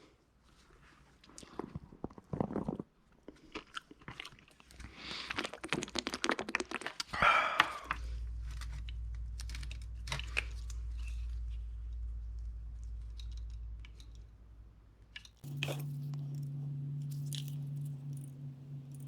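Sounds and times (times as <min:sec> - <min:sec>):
steady low hum: 0:07.8 - 0:19.0.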